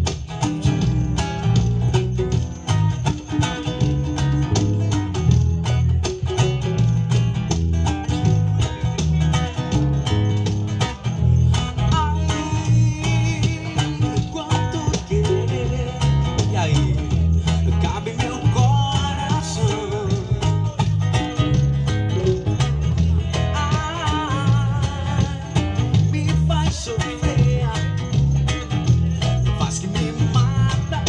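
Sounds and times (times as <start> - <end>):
guitar: 0.0 - 31.0
music with heavy bass beat: 0.0 - 31.0
person singing: 12.0 - 17.2.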